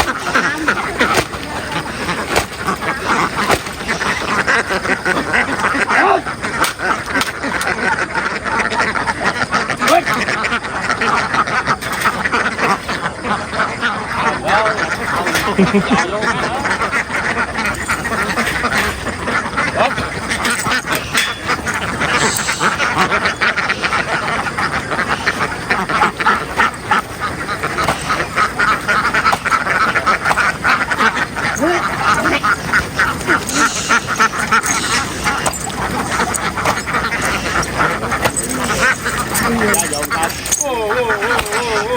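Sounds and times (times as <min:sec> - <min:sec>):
ducks quacking: 0:00.0 - 0:41.9.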